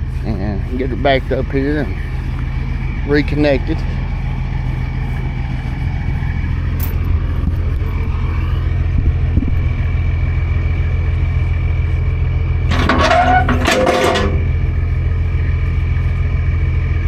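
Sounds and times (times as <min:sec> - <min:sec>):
truck diesel engine rumbling: 0:00.0 - 0:17.0.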